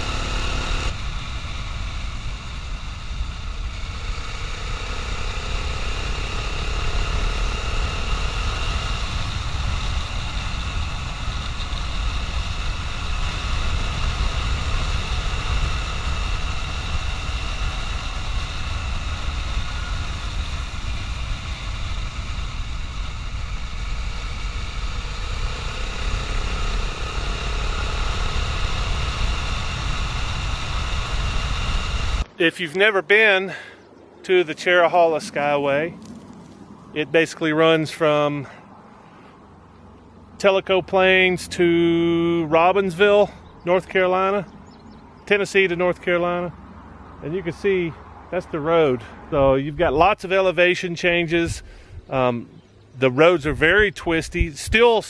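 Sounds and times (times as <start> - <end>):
motorcycle engine running: 0.0 - 32.4, 33.5 - 54.6
wind rumble on microphone: 51.3 - 55.0.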